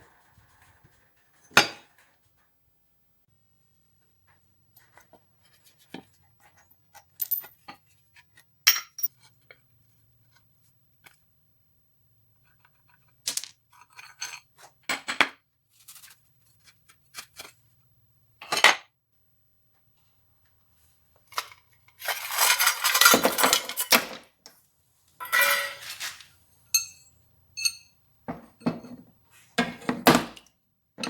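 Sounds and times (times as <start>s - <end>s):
metal tools clinking and scraping: 21.3s - 24.2s, 25.2s - 27.9s.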